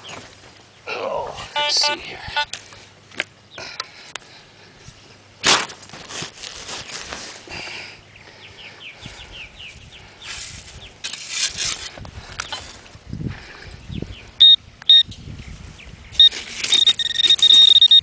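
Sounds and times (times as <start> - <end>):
hand digger scraping sand: 10.3 - 12.8.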